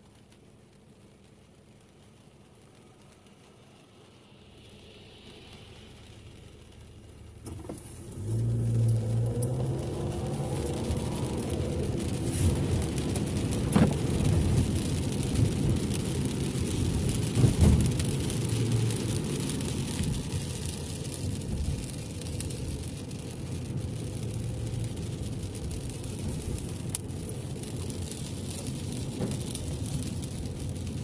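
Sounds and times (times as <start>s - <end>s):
rain and spray hiss: 0.0s - 31.0s
tyres and engine rumble: 0.2s - 31.0s.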